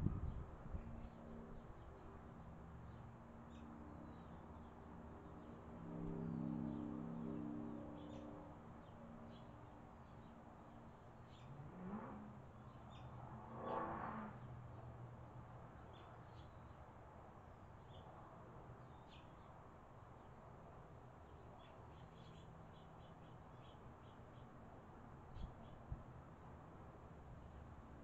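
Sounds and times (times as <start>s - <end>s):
vehicle engine revving: 11.4s - 14.5s.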